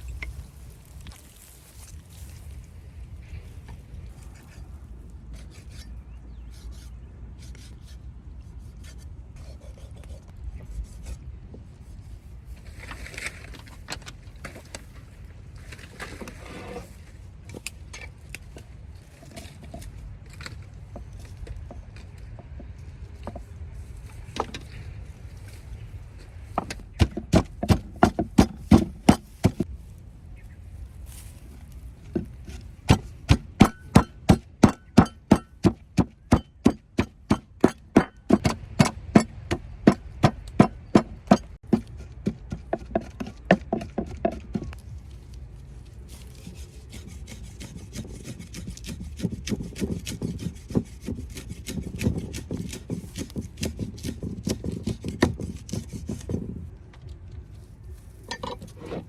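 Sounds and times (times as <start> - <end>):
heavy chopping on wood: 26.6 - 29.6, 32.2 - 44.7.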